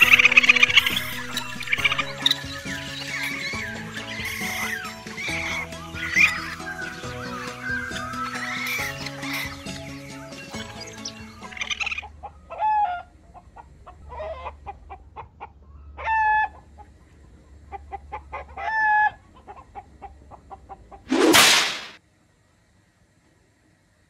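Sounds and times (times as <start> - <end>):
chicken clucking: 0.0 - 21.0
loud whoosh: 21.1 - 22.0.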